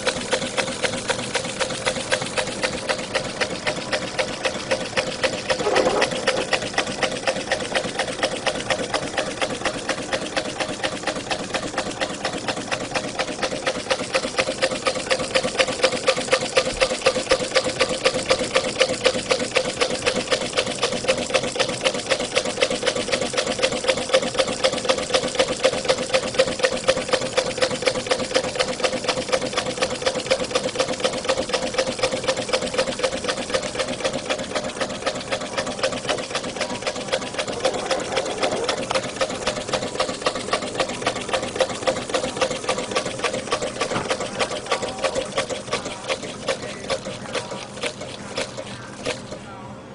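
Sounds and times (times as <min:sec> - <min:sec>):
steady engine hum: 0:00.0 - 0:20.8, 0:21.5 - 0:49.9
small engine parts clattering: 0:28.3 - 0:49.4.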